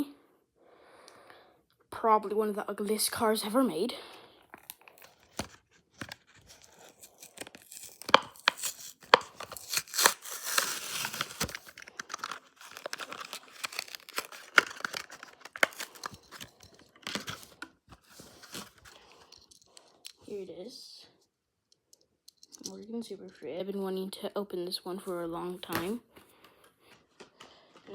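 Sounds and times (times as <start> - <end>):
plastic crinkling: 4.6 - 20.3
card tearing: 4.9 - 19.3.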